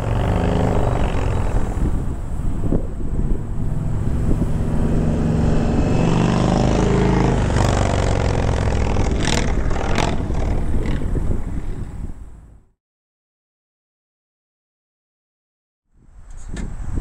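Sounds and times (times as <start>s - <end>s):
motorcycle engine revving: 0.0s - 2.2s, 3.0s - 11.4s.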